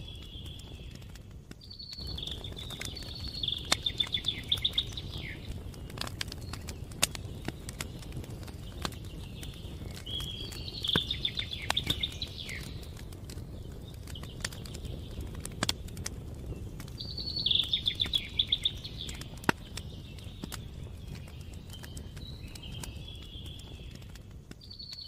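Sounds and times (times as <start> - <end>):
campfire crackling and popping: 0.0 - 25.0
songbird trilling: 1.7 - 5.5, 9.2 - 12.8, 17.0 - 20.3.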